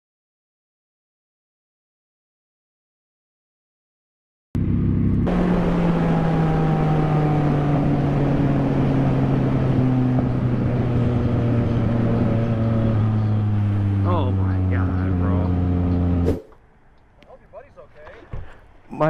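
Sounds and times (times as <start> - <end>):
motorcycle engine running: 4.6 - 16.3.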